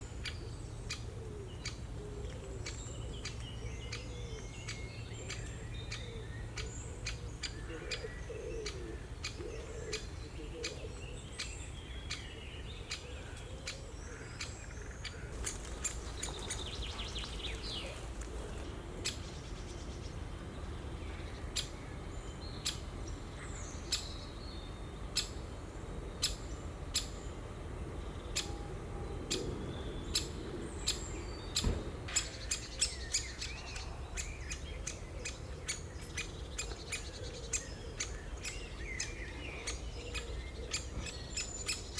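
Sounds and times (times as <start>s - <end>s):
small birds chirping: 0.0s - 41.9s
woodpecker ticks: 15.0s - 19.2s.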